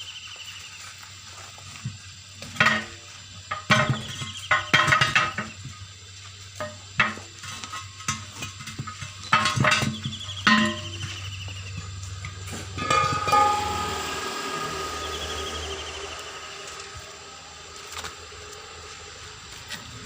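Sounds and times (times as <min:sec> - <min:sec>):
metal hand tools clinking: 0:12.8 - 0:14.3.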